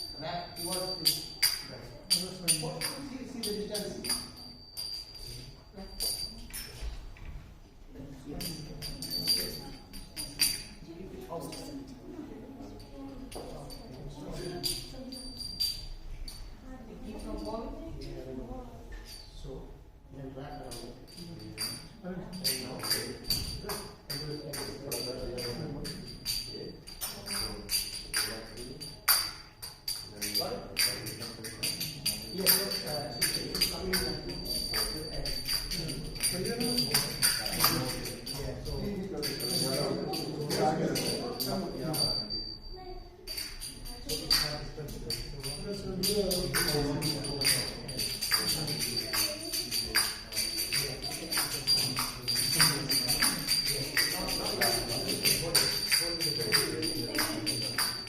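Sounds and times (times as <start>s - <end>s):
steady high ring: 0.0s - 6.9s, 13.0s - 16.6s, 20.3s - 58.0s
small hand cymbals clinking: 0.0s - 7.0s, 8.2s - 12.0s, 12.6s - 18.2s, 18.8s - 19.4s, 20.4s - 58.0s.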